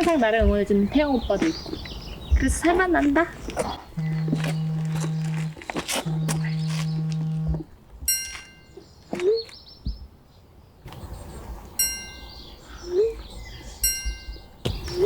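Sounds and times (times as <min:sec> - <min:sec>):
bird chirping: 0:00.0 - 0:15.0
metal wind chime ringing: 0:08.1 - 0:08.8, 0:11.8 - 0:12.6, 0:13.8 - 0:14.5.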